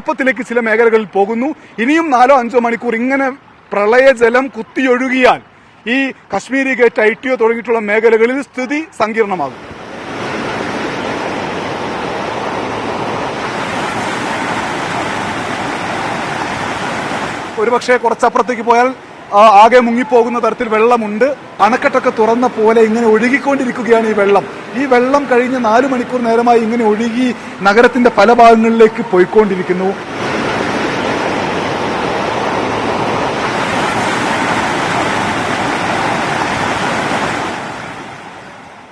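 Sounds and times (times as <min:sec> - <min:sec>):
floodwater rushing: 0:07.8 - 0:38.9.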